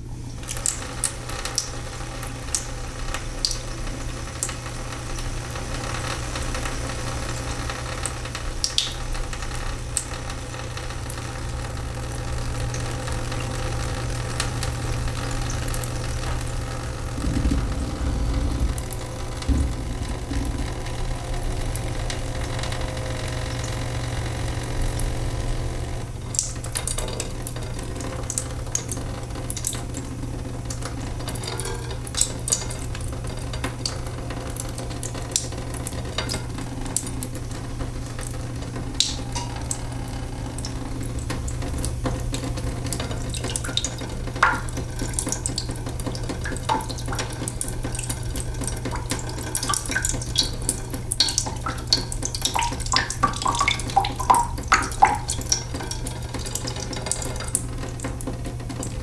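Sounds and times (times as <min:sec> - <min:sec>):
water dripping in a sink: 0:00.0 - 0:59.0
steady low hum: 0:14.9 - 0:26.8.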